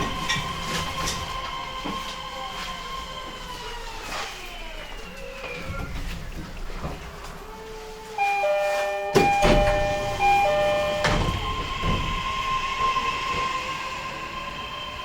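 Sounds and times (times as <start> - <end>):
electric train motor whine: 8.2 - 13.4.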